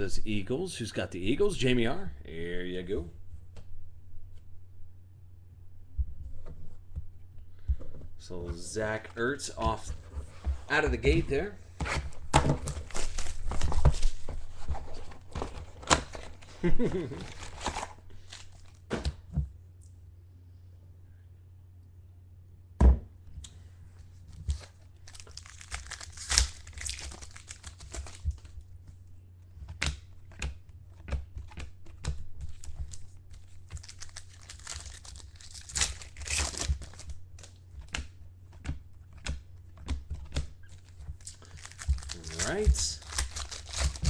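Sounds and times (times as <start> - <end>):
steady low hum: 0.0 - 44.0
cards being handled: 8.3 - 19.2, 24.3 - 28.6, 29.6 - 44.0
wrappers crinkling and tearing: 12.7 - 14.2, 16.0 - 18.8, 24.4 - 28.5, 32.5 - 37.6, 40.7 - 44.0.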